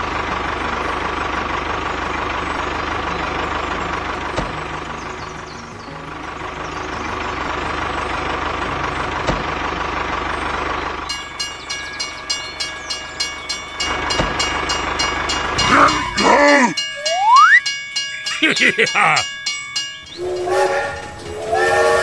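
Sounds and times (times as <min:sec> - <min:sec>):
wheels clacking over rail joints: 0:00.0 - 0:16.2
train rumble: 0:00.0 - 0:17.0, 0:17.6 - 0:22.0
short rising whistle: 0:16.9 - 0:17.7
train horn call: 0:20.1 - 0:22.0.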